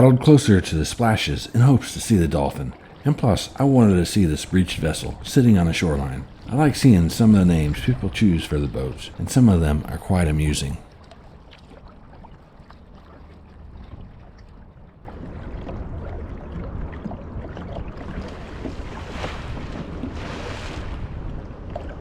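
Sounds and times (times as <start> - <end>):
wind buffeting microphone: 0.0 - 10.8, 13.6 - 22.0
water drips and clicks: 0.0 - 19.4
kayak paddling water: 0.0 - 22.0
water splashing: 0.0 - 22.0.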